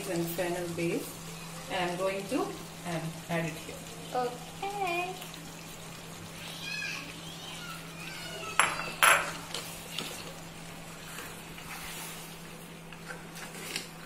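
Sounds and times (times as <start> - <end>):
cookware clanking against pan: 8.6 - 9.4.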